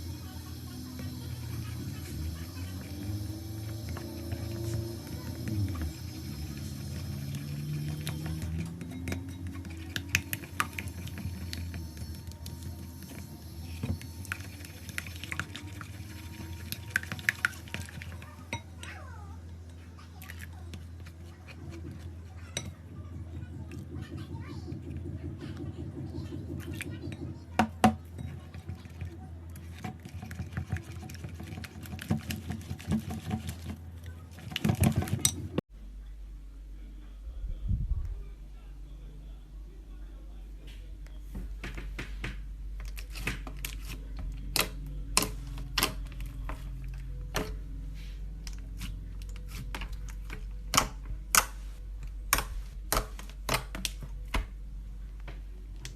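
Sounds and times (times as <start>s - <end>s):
steady low hum: 0.0s - 28.5s, 35.4s - 55.9s
low hum: 21.7s - 27.6s, 35.8s - 41.2s.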